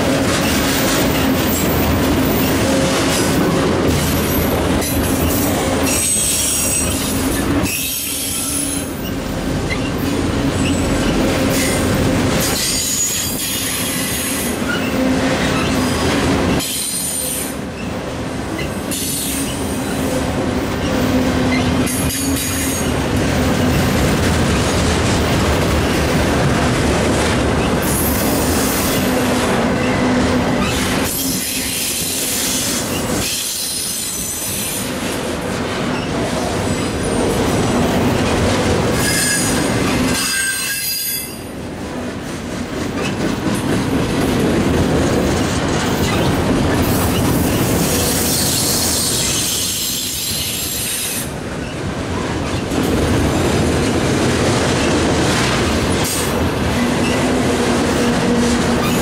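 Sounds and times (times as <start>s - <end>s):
train wheels clattering on rail: 0.0s - 59.0s
high-pitched wheel squeal: 40.2s - 41.4s.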